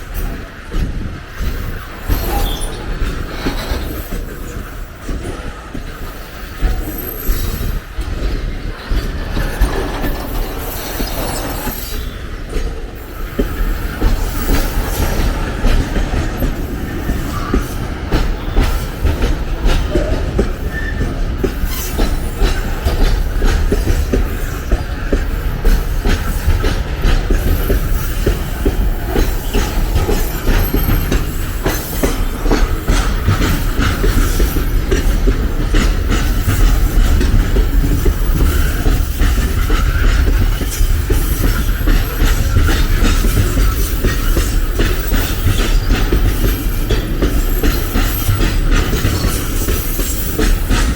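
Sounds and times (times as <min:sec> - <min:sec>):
train wagons rolling past: 0:00.0 - 0:50.9
wheels clattering over rail joints: 0:00.1 - 0:50.9
wheel squeal: 0:02.0 - 0:04.0, 0:08.8 - 0:12.3, 0:20.6 - 0:22.4.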